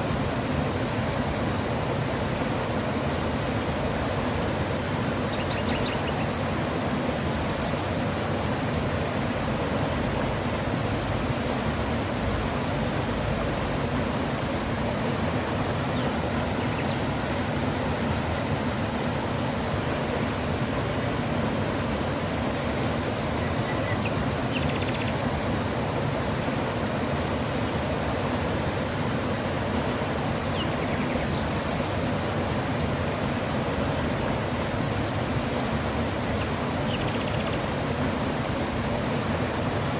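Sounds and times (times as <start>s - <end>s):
river rushing: 0.0s - 39.9s
insect chirping: 1.0s - 23.2s, 30.5s - 39.7s.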